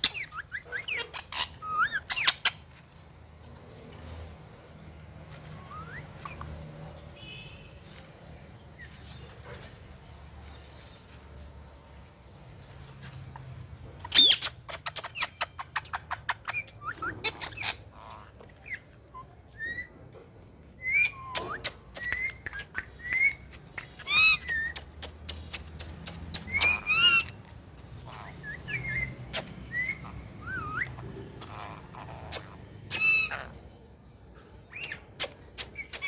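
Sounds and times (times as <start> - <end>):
parakeet whistles and chirps: 0.0 - 2.7, 5.3 - 7.8, 14.0 - 20.0, 20.7 - 33.6, 34.6 - 36.0
parakeet screechy calls: 0.0 - 2.9, 14.0 - 18.9, 26.4 - 33.6.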